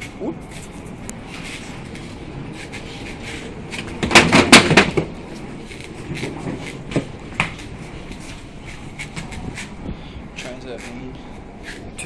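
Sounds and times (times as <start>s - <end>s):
steady background rumble: 0.0s - 12.0s
loud knocks and bangs: 4.0s - 5.1s.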